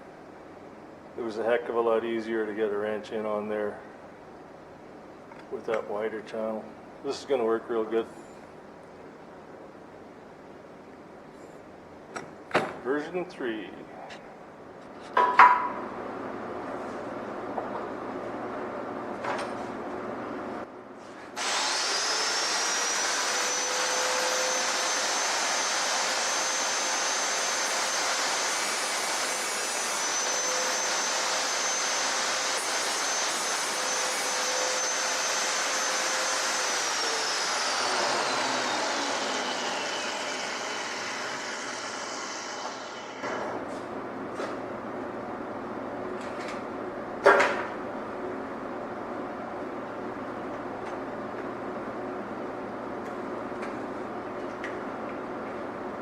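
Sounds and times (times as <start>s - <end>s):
electric power tool whining: 21.4s - 43.3s.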